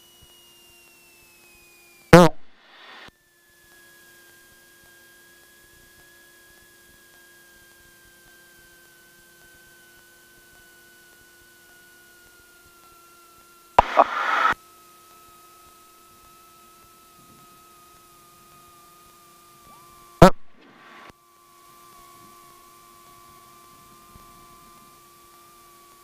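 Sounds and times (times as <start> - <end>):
intercom hum: 2.2 - 3.1, 13.8 - 14.6, 19.7 - 21.1
loud burst of noise: 2.2 - 3.1, 13.8 - 14.6.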